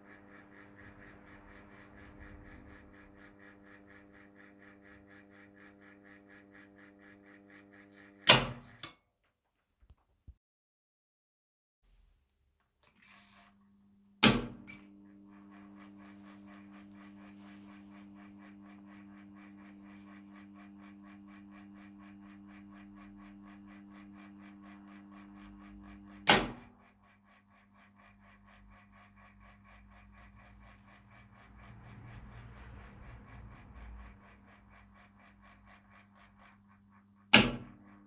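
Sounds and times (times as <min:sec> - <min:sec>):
rapid ticking of timer: 0:26.8 - 0:36.8.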